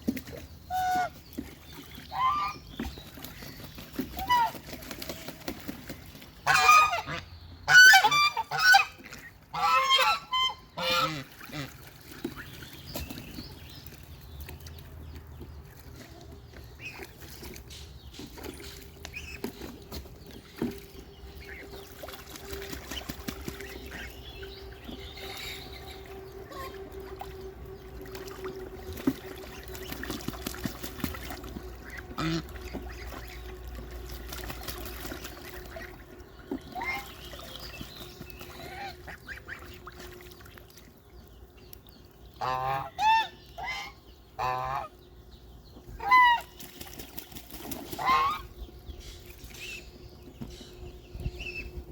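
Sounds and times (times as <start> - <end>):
birds calling: 0.0 - 51.9
steady low hum: 15.6 - 51.9.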